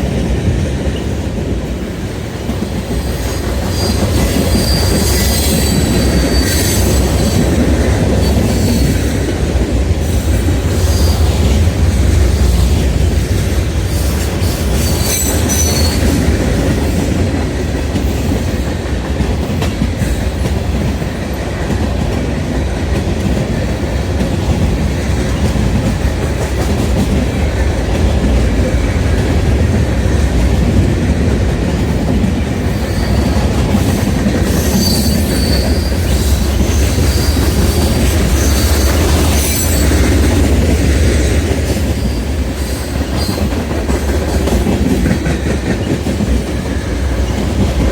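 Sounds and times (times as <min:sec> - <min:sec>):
freight train rumbling past: 0:00.0 - 0:47.9
train wheel squeal: 0:02.7 - 0:17.3, 0:31.8 - 0:47.9.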